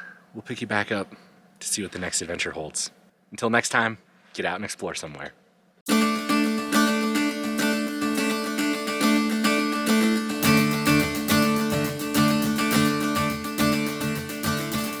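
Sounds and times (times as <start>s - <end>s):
bass line: 5.9s - 15.0s
steady beat: 5.9s - 15.0s
strummed guitar: 5.9s - 15.0s.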